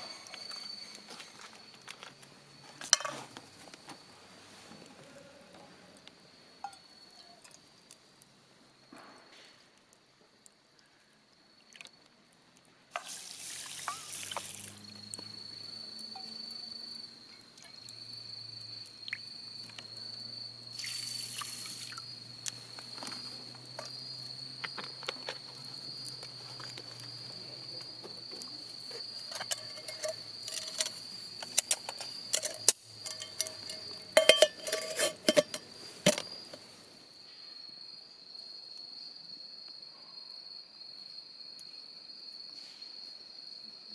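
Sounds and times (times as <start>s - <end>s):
high insect trill: 0.0s - 43.9s
camp cookware clinking: 2.7s - 3.4s, 6.6s - 7.6s, 13.0s - 14.2s, 28.8s - 36.7s.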